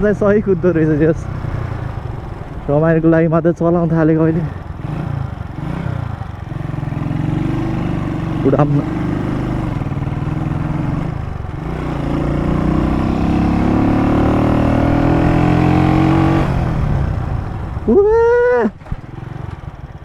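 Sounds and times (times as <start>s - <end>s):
motorcycle engine accelerating: 0.0s - 20.0s
person shouting: 17.9s - 18.8s.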